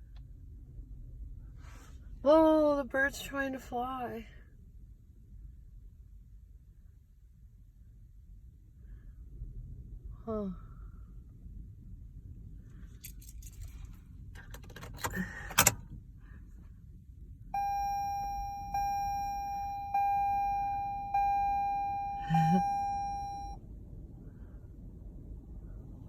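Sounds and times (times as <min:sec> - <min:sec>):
low wind rumble: 0:00.0 - 0:26.0
keys jangling: 0:12.9 - 0:15.7
car warning chime dinging: 0:17.6 - 0:23.6.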